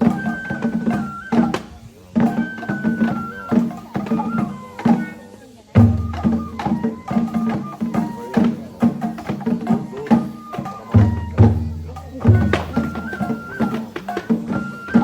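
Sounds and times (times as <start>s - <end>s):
bamboo flute melody: 0.0s - 15.0s
taiko drums: 0.0s - 15.0s
deep drum: 11.0s - 13.4s.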